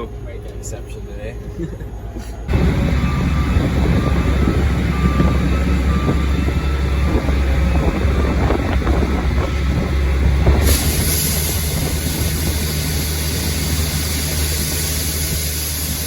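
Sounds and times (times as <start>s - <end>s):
tractor diesel engine running: 2.5s - 16.0s
hiss: 10.6s - 16.0s.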